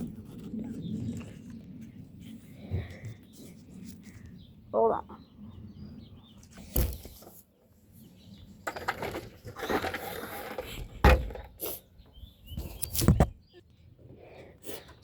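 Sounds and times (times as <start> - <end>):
rustling and scraping: 6.4 - 7.7, 8.4 - 11.9.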